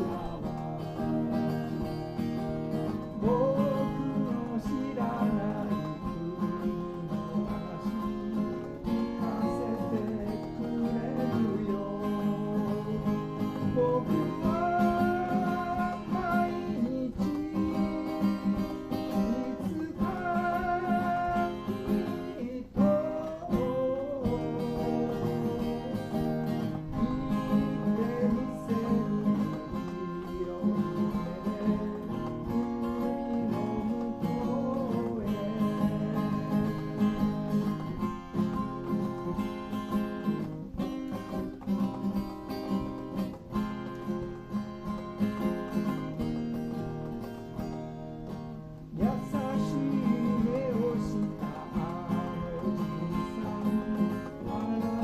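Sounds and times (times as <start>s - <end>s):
acoustic guitar strumming: 0.0s - 55.0s
held melody line: 0.0s - 55.0s.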